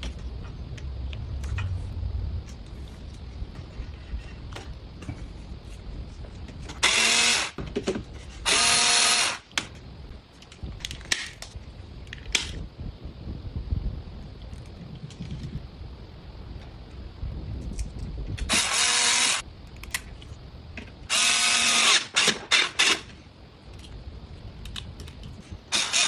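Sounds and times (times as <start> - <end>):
power tool motor whine: 6.6 - 9.6, 18.4 - 19.4, 21.1 - 23.2, 25.7 - 26.0.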